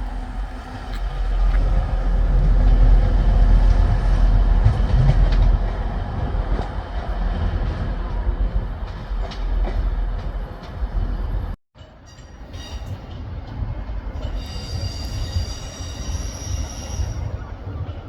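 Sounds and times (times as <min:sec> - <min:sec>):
train rumbling past: 0:00.0 - 0:18.0
wheels squealing on rails: 0:12.0 - 0:13.4, 0:14.1 - 0:18.0.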